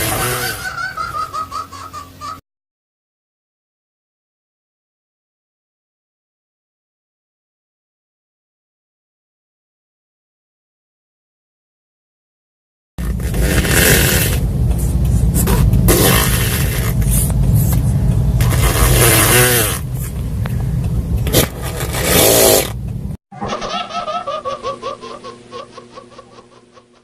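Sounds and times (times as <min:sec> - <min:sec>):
scooter exhaust revving: 0:00.0 - 0:01.3, 0:13.0 - 0:23.2.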